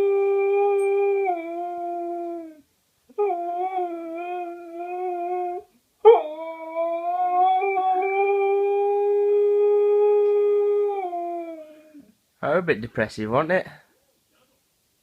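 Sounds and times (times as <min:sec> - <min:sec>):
husky howling: 0:00.0 - 0:02.6, 0:03.2 - 0:12.1.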